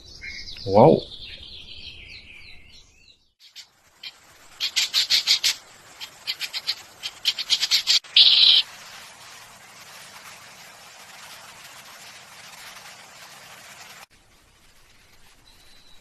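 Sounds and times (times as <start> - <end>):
bird chattering notes: 3.5 - 8.6
songbird warbling whistle: 6.2 - 8.6.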